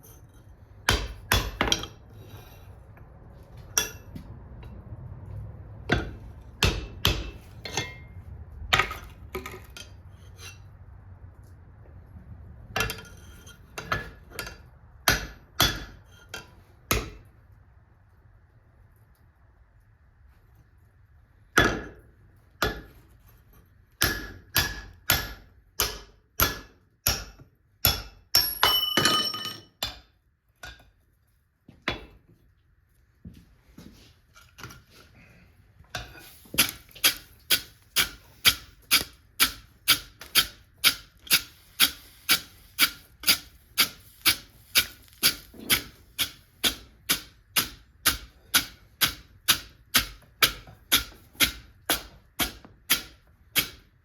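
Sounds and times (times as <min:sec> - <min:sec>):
hammer striking steel on anvil: 0:00.8 - 0:02.0, 0:05.9 - 0:08.1, 0:13.9 - 0:16.0, 0:24.0 - 0:30.8, 0:36.0 - 0:53.9.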